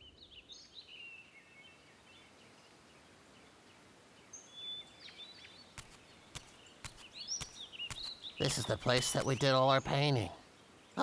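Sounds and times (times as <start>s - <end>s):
faint birds chirping: 0.0s - 11.0s
sharp click: 5.8s - 8.2s.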